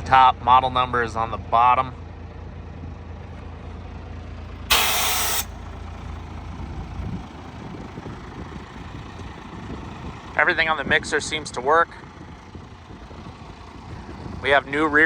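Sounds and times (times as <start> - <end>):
diesel engine idling: 2.0 - 15.0
compressed air hiss: 4.7 - 5.5.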